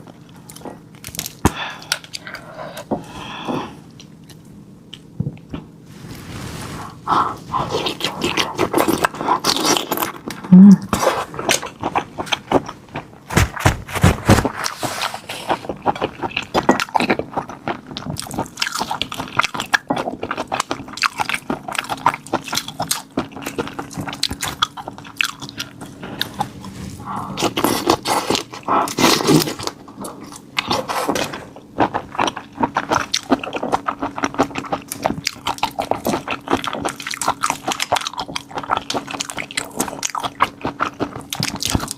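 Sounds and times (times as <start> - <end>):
person chewing crunchy prawns: 7.3 - 13.2, 14.4 - 41.9.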